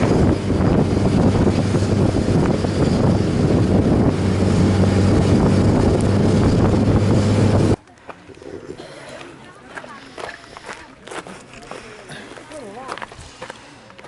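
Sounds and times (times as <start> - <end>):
wind rushing over microphone: 0.0 - 7.8
motorcycle engine hum: 0.0 - 8.8.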